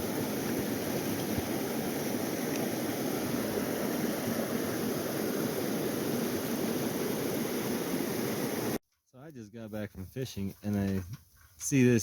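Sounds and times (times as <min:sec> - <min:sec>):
water rushing over rocks: 0:00.0 - 0:08.8.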